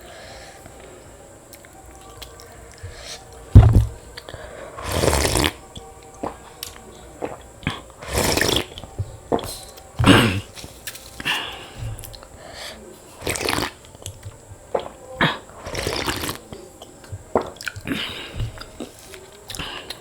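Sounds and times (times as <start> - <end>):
wet squelching and slurping: 13.2 - 13.8, 17.3 - 20.0.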